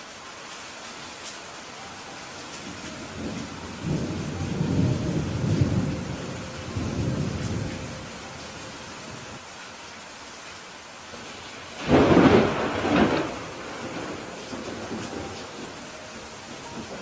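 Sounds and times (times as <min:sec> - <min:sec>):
steady rain: 0:00.0 - 0:17.0
thunder rumbling: 0:02.5 - 0:09.4, 0:11.2 - 0:17.0.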